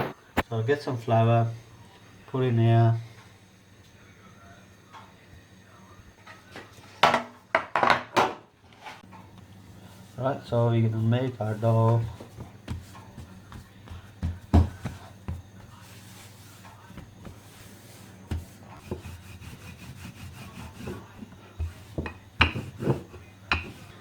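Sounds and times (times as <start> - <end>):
dough rubbing on a surface: 9.6 - 24.0
knocks of dough kneading: 10.8 - 24.0.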